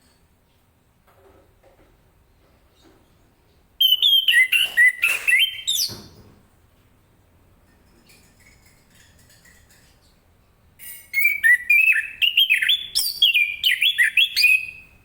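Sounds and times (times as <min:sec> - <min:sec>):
thrush singing whistled phrases: 0:03.8 - 0:05.9, 0:11.2 - 0:14.9.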